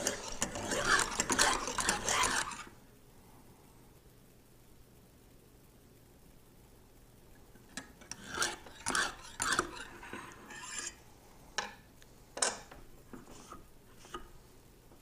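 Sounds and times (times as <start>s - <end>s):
honing stone scraping knife edge: 0.0s - 2.7s, 8.0s - 11.0s.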